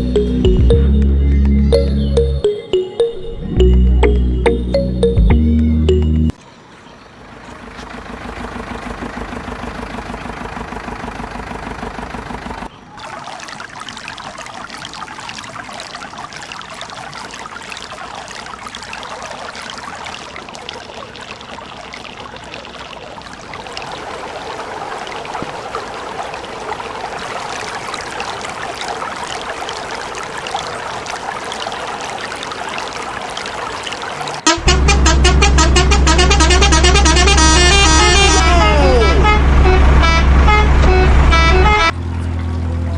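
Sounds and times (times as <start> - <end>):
grainy trickling and pouring: 12.9 - 34.5.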